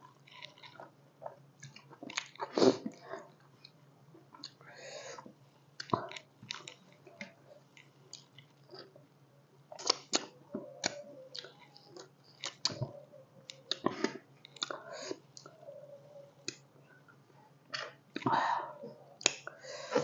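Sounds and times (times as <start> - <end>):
person chewing food: 0.0 - 9.1, 9.7 - 16.6
mouth clicks: 9.8 - 16.6.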